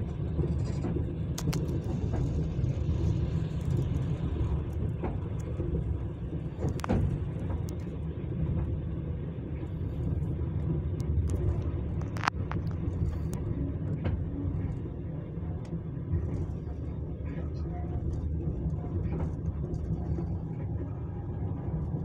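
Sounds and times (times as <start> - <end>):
train rumble inside carriage: 0.0 - 22.0
sharp clicks and knocks: 6.5 - 7.8.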